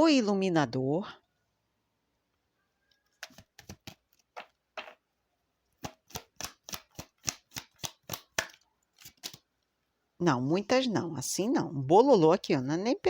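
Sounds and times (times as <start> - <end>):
cards being shuffled: 3.2 - 5.0, 5.8 - 9.4.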